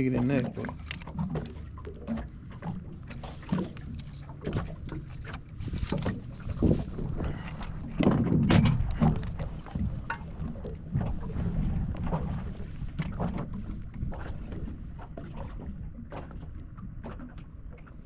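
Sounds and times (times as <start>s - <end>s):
knocks and bumps on a boat: 0.0s - 18.0s
wind buffeting microphone: 2.5s - 15.0s.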